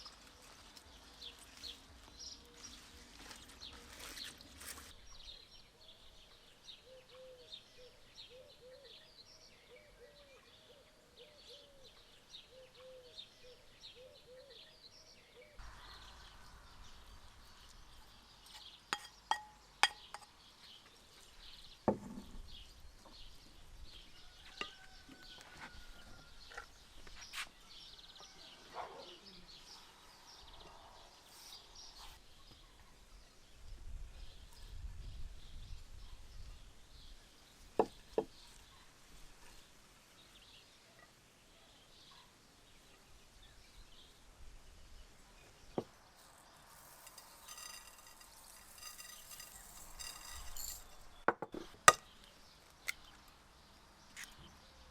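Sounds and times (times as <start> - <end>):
birds chirping: 0.0 - 25.8, 46.6 - 54.9
low bird calls: 6.8 - 14.8.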